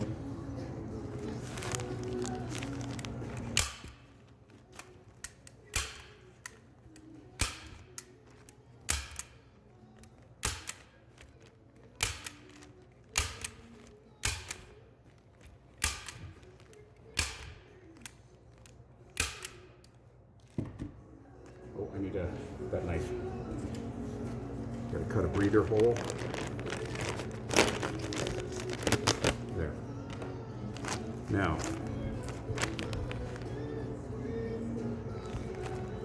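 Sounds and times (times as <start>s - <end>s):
staple gun firing: 3.6s - 4.0s, 4.8s - 6.6s, 7.4s - 9.5s, 10.4s - 11.0s, 12.0s - 14.8s, 15.8s - 16.5s, 17.1s - 18.1s, 19.2s - 19.9s.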